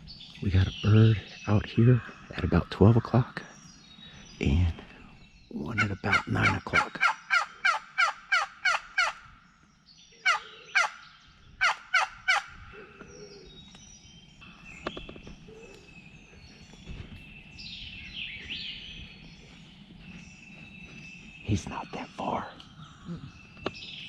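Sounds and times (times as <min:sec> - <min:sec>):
songbirds chirping and singing: 0:00.0 - 0:24.0
turkey yelps: 0:05.8 - 0:09.2, 0:10.2 - 0:11.0, 0:11.6 - 0:13.4.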